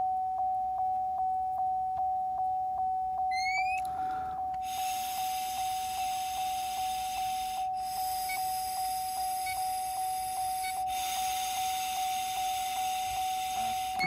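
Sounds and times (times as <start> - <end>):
ignition key chime dinging: 3.2 - 4.6
breath blowing hiss: 4.0 - 14.0.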